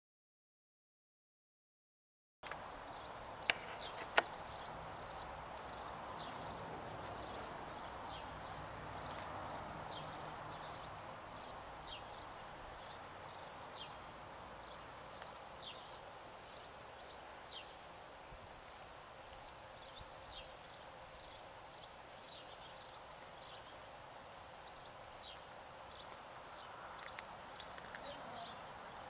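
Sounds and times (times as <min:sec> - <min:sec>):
sharp clicks: 0:27.0 - 0:28.1.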